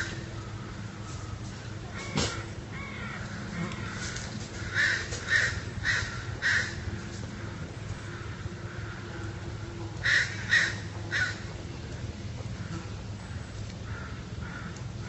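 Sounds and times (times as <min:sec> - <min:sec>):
bird harsh calls: 0:00.0 - 0:09.3, 0:10.0 - 0:11.5
steady low hum: 0:00.0 - 0:15.0.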